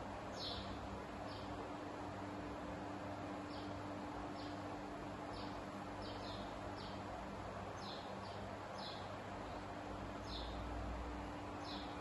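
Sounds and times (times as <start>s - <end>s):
low steady hum: 0.0s - 12.0s
small bird chirping: 0.3s - 1.6s, 5.3s - 7.1s, 7.8s - 10.6s, 11.6s - 12.0s.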